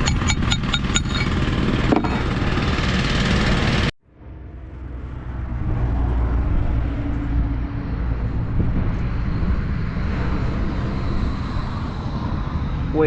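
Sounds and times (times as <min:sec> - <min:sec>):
heavy engine droning: 0:00.0 - 0:13.0.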